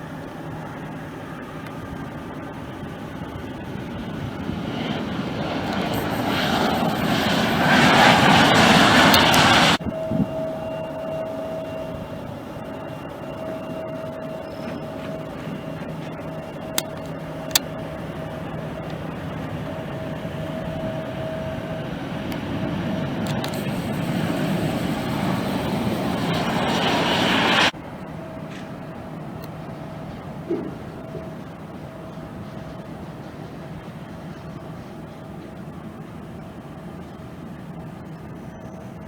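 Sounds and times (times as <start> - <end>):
jet engine whine: 0.0 - 39.0
sharp clicks: 5.6 - 9.8, 16.8 - 17.7, 23.2 - 27.7.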